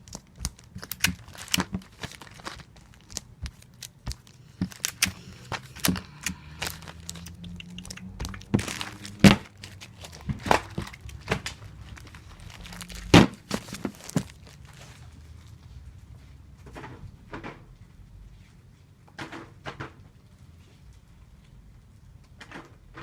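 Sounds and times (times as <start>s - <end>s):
tape pulled and torn: 0.0s - 14.7s
paper crinkling: 0.0s - 15.6s
sharp thunks: 8.2s - 9.5s.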